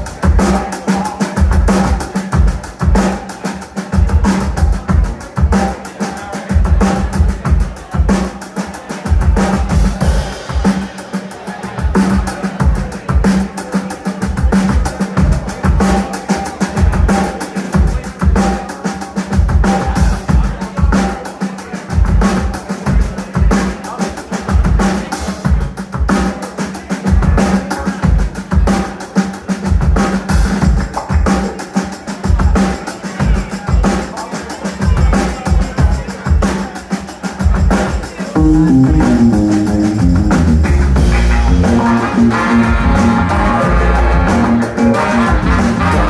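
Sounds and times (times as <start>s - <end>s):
drum kits playing a groove: 0.0s - 46.0s
pitched instrument lines: 38.4s - 46.0s
sustained bass: 38.4s - 46.0s.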